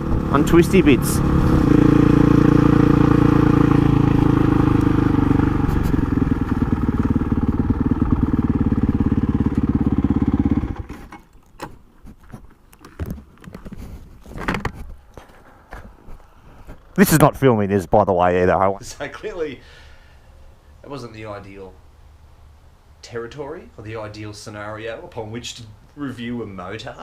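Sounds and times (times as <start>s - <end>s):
motorcycle engine running: 0.0s - 11.1s
wind and road noise: 0.0s - 18.2s
faint clicks and rustles: 10.9s - 17.0s.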